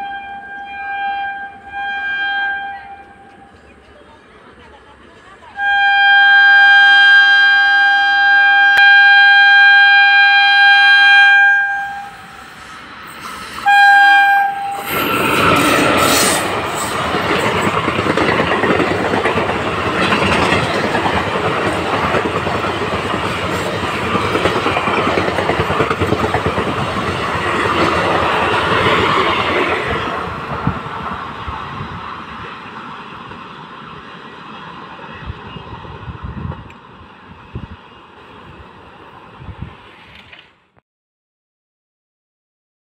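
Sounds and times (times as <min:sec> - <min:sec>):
train horn blasts: 0:00.0 - 0:03.6, 0:05.6 - 0:12.6, 0:13.6 - 0:16.4
train wheels clattering over rails: 0:14.9 - 0:31.8.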